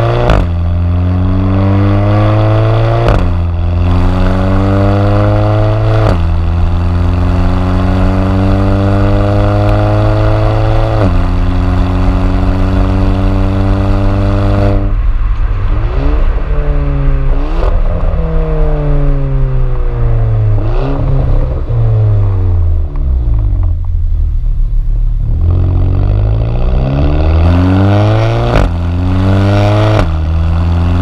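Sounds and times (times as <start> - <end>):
car engine accelerating hard: 0.0 - 31.0
engine rev blips on downshifts: 25.4 - 31.0.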